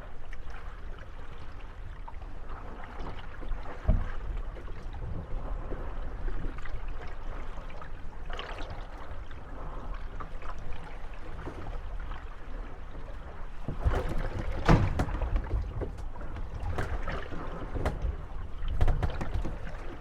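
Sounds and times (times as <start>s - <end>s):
water lapping against wooden hulls: 0.0s - 20.0s
boats knocking together: 13.0s - 20.0s.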